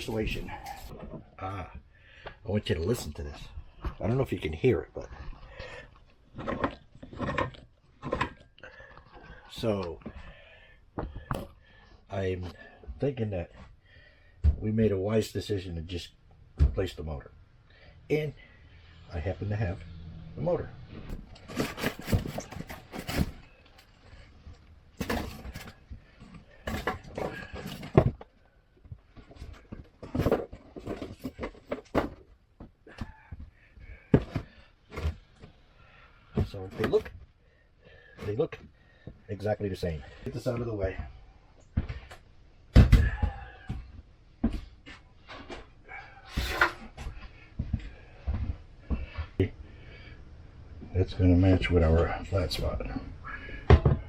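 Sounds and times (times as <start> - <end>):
blower motor parts being handled: 6.2 - 9.6, 21.0 - 35.6.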